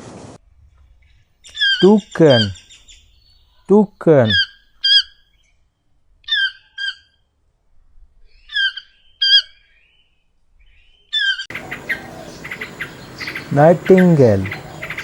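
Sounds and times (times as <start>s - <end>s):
bird chirping: 0.9s - 7.3s, 8.2s - 15.0s
toucan harsh calls: 1.4s - 5.4s, 6.2s - 7.3s, 8.3s - 9.8s, 11.1s - 15.0s
recording hiss: 11.5s - 15.0s.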